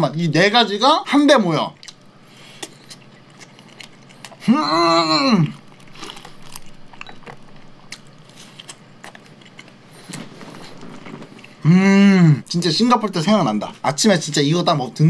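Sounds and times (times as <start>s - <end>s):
man chewing toast: 1.7s - 11.6s.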